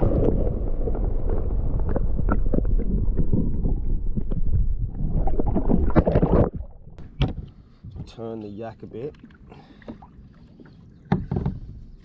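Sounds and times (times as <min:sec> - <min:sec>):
wind rumbling on microphone: 0:00.0 - 0:08.2
knocks and slaps on kayak: 0:11.1 - 0:11.8.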